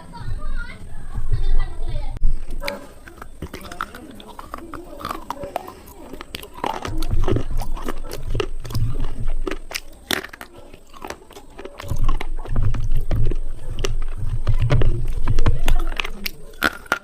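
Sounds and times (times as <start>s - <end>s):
dull low jaw thuds: 0.2s - 3.6s, 6.5s - 9.8s, 11.8s - 16.6s
chewing with sharp crunching: 2.3s - 17.0s.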